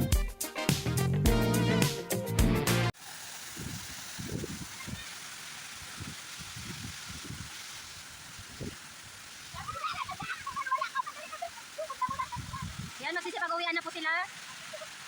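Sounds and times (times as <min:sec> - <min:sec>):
flowing water rushing: 0:03.0 - 0:15.0.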